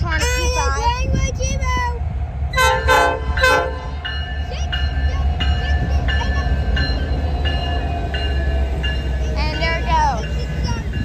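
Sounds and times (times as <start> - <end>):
passing train rumble: 0.0 - 11.0
locomotive air horn blasts: 2.6 - 4.0
bell ringing: 4.0 - 11.0.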